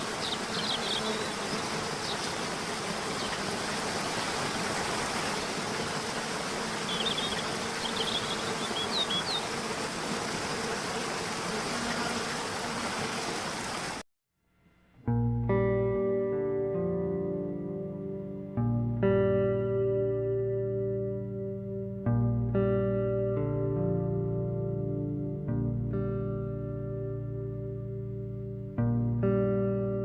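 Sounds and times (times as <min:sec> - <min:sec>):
high bird chirps: 0:00.2 - 0:01.4, 0:06.9 - 0:09.5
guitar music: 0:15.0 - 0:30.0.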